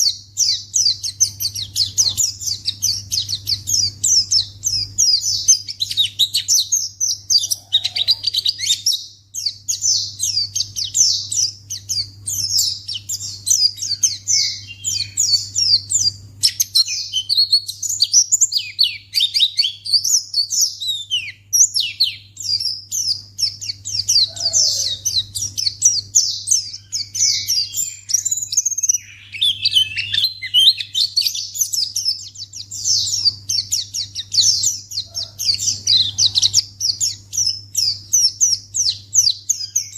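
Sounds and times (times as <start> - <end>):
bird chattering warble: 21.9 - 39.9.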